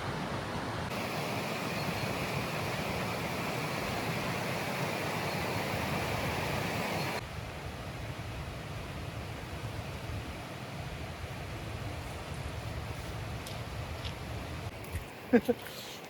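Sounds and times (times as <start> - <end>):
fast-flowing water rushing: 0.0 - 7.2.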